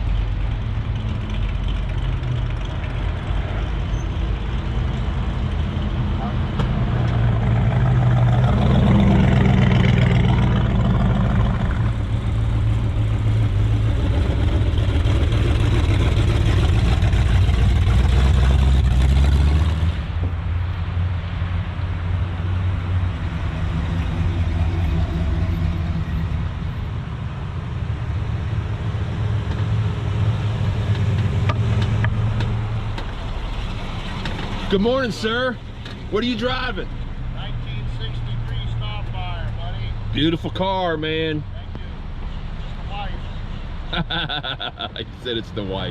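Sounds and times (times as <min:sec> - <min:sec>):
car engines rumbling past: 0:00.0 - 0:45.9.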